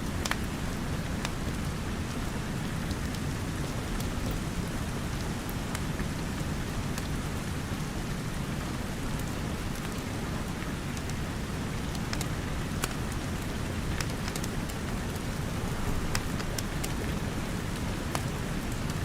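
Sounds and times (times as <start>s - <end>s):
steady rain: 0.0s - 19.0s
wood fire popping and crackling: 0.1s - 3.2s, 9.1s - 19.0s.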